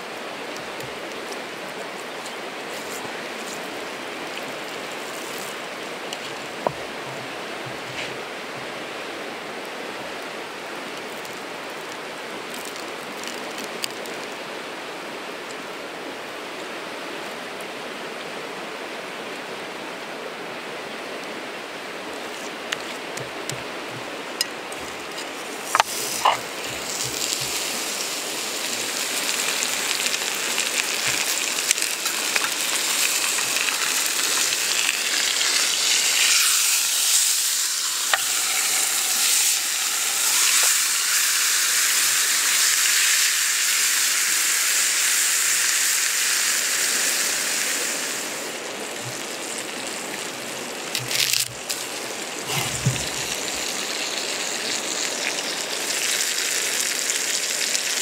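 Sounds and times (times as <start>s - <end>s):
campfire crackles: 0.0s - 17.8s, 21.1s - 58.0s
food sizzling in a pan: 24.4s - 58.0s.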